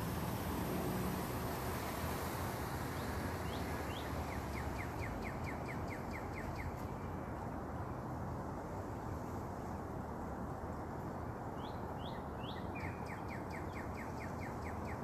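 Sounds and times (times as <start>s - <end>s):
songbird singing: 2.9s - 7.1s, 11.5s - 15.0s.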